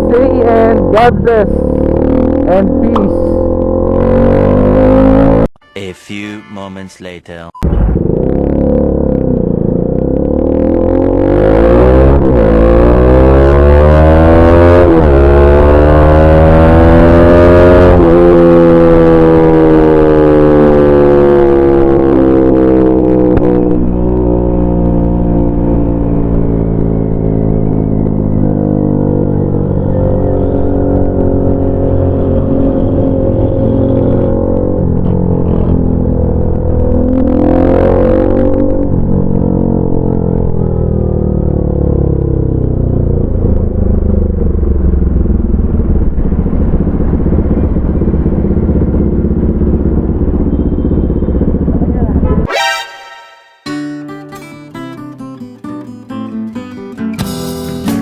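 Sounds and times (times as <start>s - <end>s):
motorcycle engine running: 0.0s - 5.5s, 14.8s - 52.5s.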